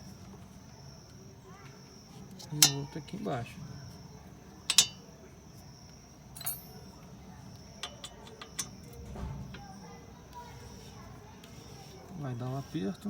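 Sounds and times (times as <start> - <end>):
metallic clicks of tools on bolts: 2.5 - 2.9, 4.6 - 5.1, 6.4 - 6.8, 7.8 - 9.6.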